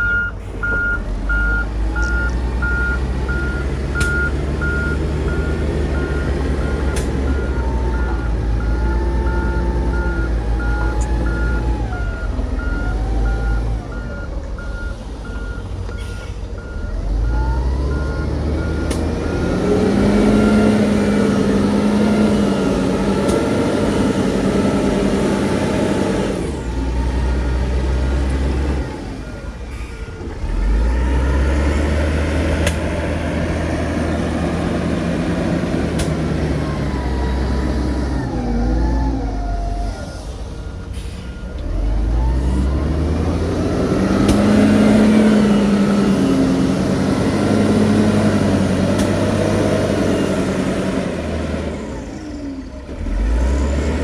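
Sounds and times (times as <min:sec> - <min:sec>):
reversing alarm beeping: 0:00.0 - 0:30.0
diesel machinery engine running: 0:00.0 - 0:54.0.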